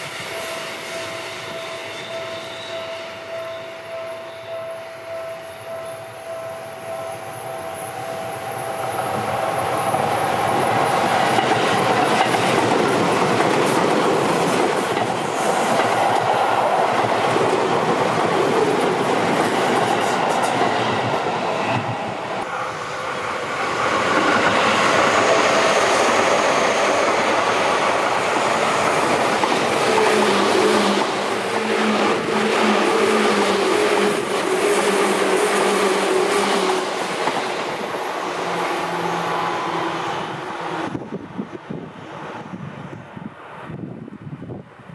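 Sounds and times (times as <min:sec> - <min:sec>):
train wheels clattering on rails: 0:07.0 - 0:41.0.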